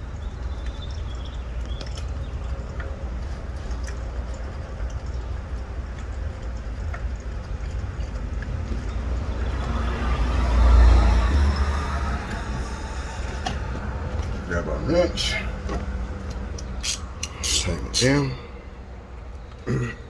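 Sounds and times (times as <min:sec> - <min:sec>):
steady low rumble: 0:00.0 - 0:20.0
vehicle passing by: 0:08.2 - 0:17.2.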